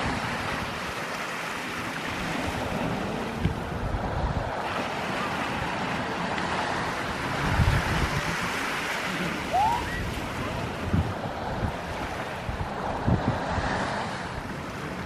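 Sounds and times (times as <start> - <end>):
waves washing onto shore: 0.0 - 15.0
wind buffeting microphone: 0.0 - 15.0
rising and falling whistle: 9.5 - 10.2.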